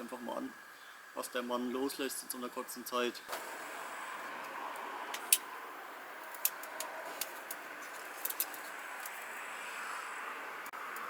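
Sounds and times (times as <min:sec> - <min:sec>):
campfire crackling: 0:03.2 - 0:11.0.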